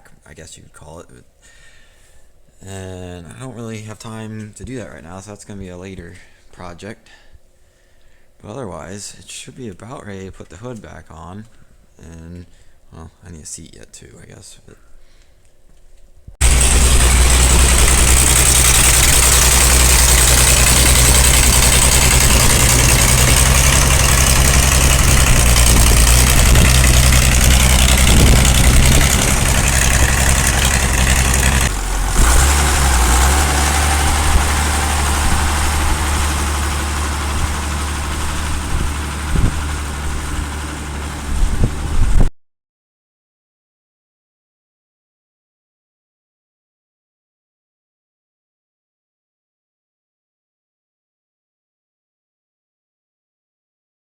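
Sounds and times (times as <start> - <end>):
tractor engine running: 16.4 - 42.2.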